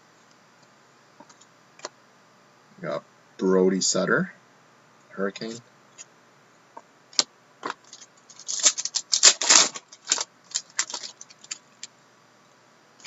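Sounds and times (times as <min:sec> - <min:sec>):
trading cards packaging crackling: 0:07.2 - 0:11.9.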